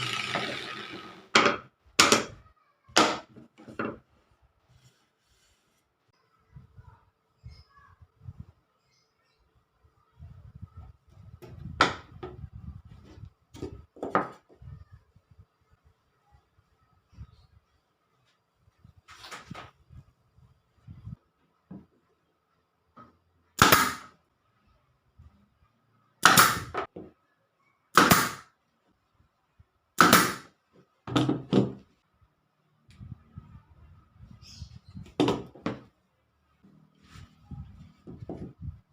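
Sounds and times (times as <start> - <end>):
wooden pieces knocking: 0.0 - 2.4, 3.0 - 4.1, 11.4 - 12.4, 35.0 - 35.9
wood rubbing and tapping: 37.8 - 38.8.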